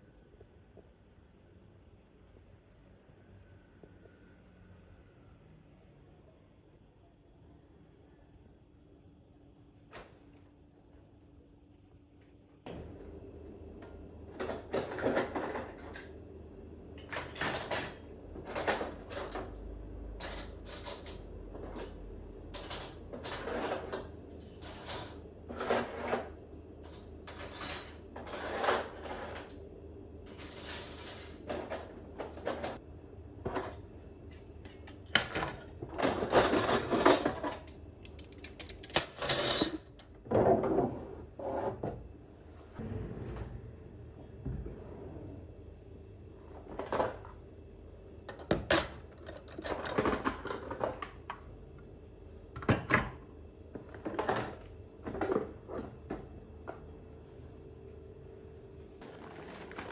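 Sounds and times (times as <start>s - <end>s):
dishes clinking and scraping: 22.6s - 29.6s, 34.4s - 41.9s.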